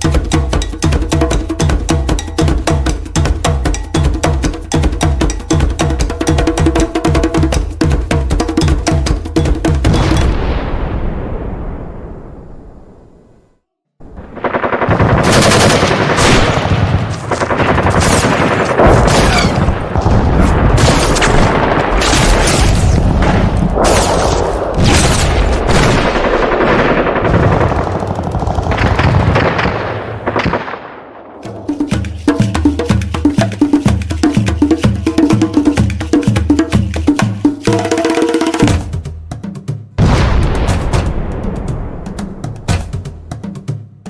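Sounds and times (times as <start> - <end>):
loud explosion rumbling: 14.2 - 31.5, 40.0 - 42.6
machine-gun fire: 14.2 - 31.7.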